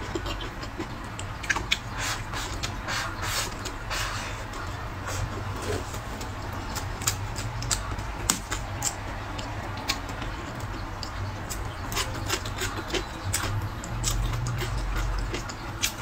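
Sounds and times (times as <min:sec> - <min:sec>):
mouth clicks and smacks: 0:00.0 - 0:05.3.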